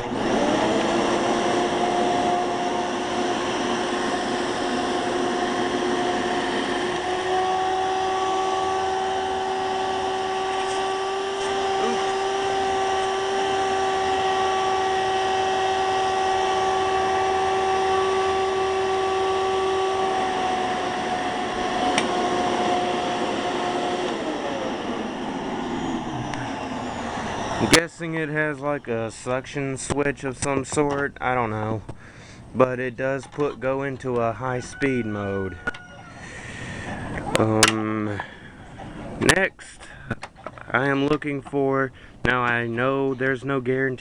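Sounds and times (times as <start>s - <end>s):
vacuum cleaner motor whining: 0.0s - 29.2s.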